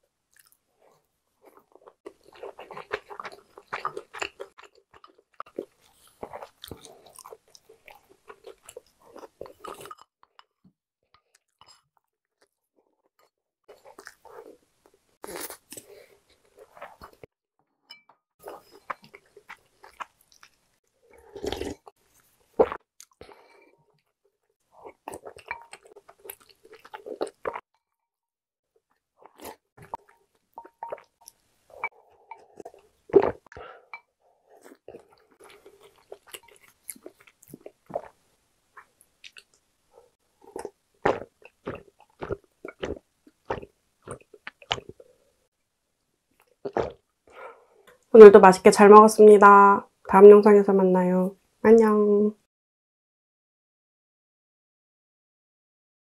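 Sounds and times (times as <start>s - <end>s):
chewing rice: 0.3s - 17.3s, 18.4s - 27.6s, 28.9s - 45.2s, 46.4s - 48.1s
spoon and chopsticks on bowls: 25.3s - 25.9s, 30.6s - 32.8s.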